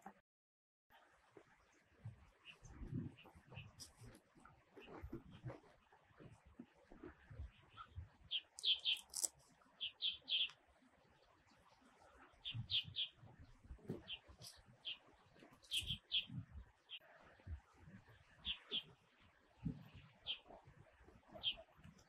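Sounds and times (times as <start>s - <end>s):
bird chirping: 7.5s - 10.6s, 12.4s - 13.2s, 13.9s - 17.0s, 18.4s - 18.9s, 21.3s - 21.7s.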